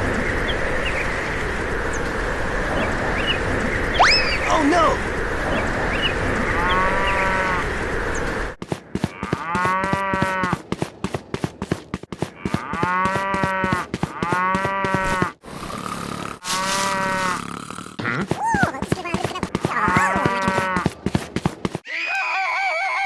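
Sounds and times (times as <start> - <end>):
cow mooing: 9.1 - 10.6, 12.3 - 18.2.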